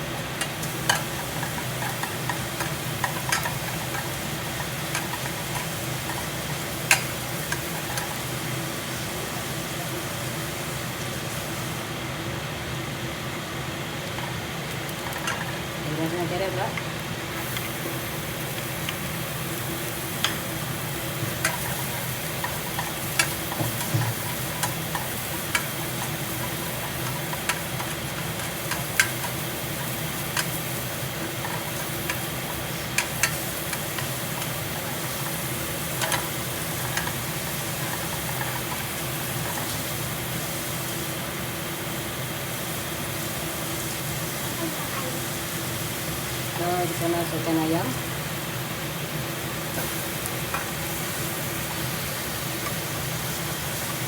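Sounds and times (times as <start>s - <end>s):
kitchen exhaust fan humming: 0.0s - 54.0s
onions sizzling in a frying pan: 0.0s - 54.0s
utensil tapping against pan: 21.4s - 30.6s.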